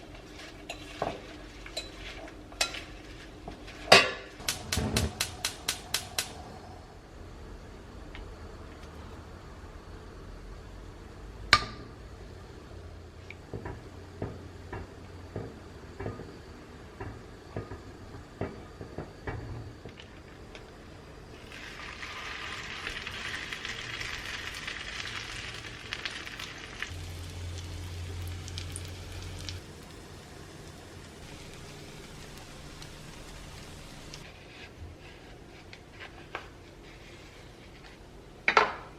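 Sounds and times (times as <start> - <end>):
sizzling hiss: 0.0 - 7.1, 21.3 - 34.4
low hum: 26.9 - 34.3.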